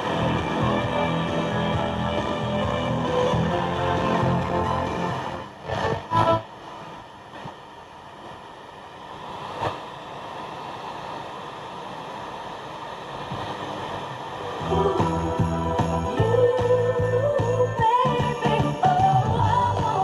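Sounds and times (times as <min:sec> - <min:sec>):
snatch of radio station: 0:00.0 - 0:07.6.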